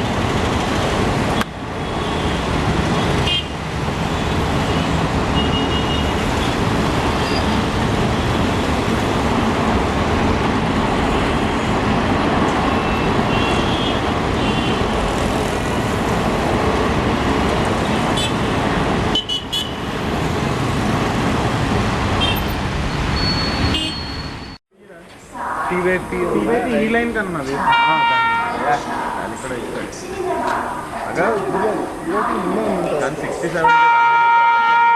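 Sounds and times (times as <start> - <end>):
train wheels rumbling on track: 0.0 - 23.9
high-pitched wheel squeals: 22.4 - 24.6.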